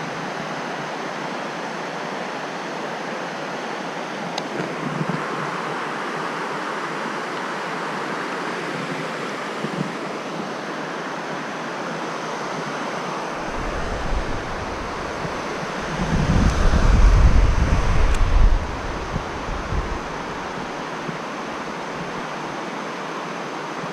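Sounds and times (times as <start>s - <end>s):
stream water rushing: 0.0s - 23.9s
wind buffeting microphone: 13.4s - 22.2s.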